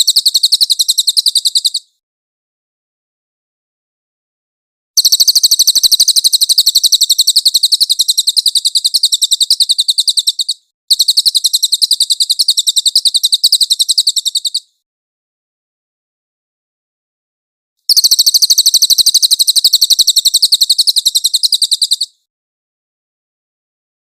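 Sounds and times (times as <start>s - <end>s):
bird trilling rapid chirps: 0.0s - 1.9s, 5.0s - 14.8s, 17.9s - 22.3s.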